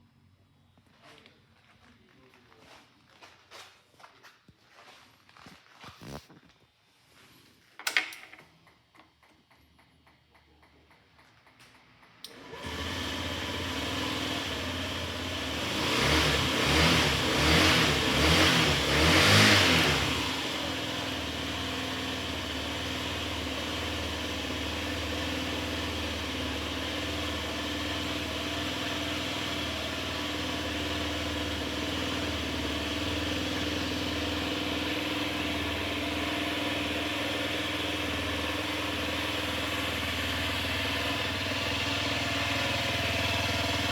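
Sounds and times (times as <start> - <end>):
scooter engine starting and idling: 9.5 - 43.9.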